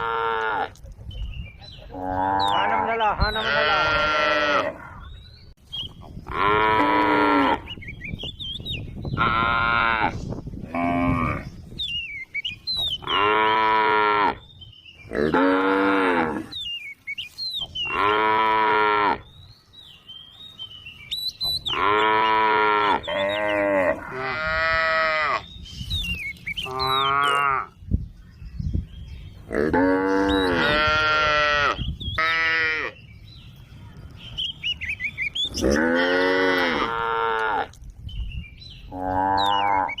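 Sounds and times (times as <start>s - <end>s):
cows mooing: 1.9s - 5.0s, 6.3s - 7.7s, 9.2s - 11.5s, 13.0s - 14.4s, 15.1s - 16.5s, 17.9s - 19.2s, 21.7s - 25.4s, 26.6s - 27.7s, 29.5s - 33.0s, 35.5s - 37.8s, 38.9s - 40.0s.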